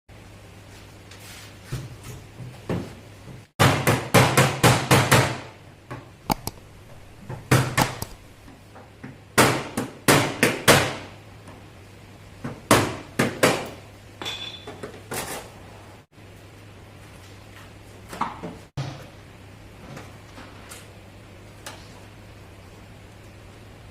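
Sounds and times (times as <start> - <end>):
steady low hum: 5.6 - 8.7.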